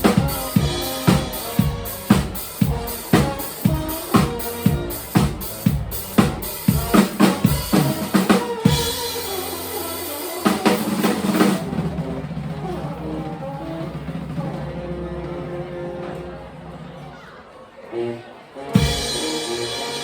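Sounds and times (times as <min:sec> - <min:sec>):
live band playing: 0:00.0 - 0:17.0, 0:18.0 - 0:20.0.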